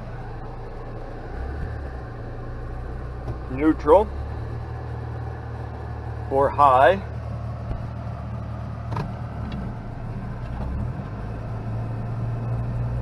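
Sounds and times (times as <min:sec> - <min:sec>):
car engine low hum: 0:00.0 - 0:13.0.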